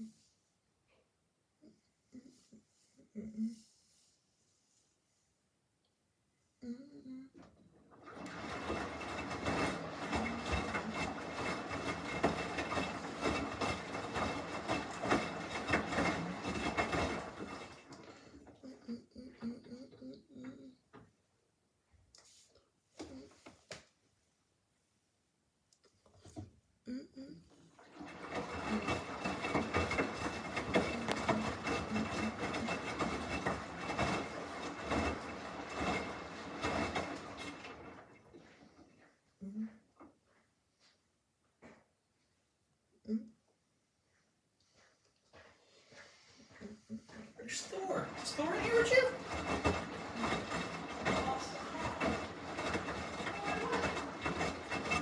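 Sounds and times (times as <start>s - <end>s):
washing machine drum humming: 7.4s - 20.7s, 27.6s - 39.0s, 47.3s - 55.0s
wet laundry knocking in drum: 8.1s - 18.2s, 47.9s - 55.0s
washing machine drum knocking: 47.8s - 55.0s.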